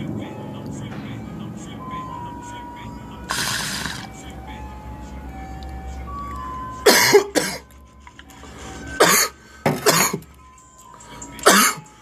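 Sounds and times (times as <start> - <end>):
man coughing: 6.8 - 7.7, 9.0 - 10.3, 11.4 - 11.9.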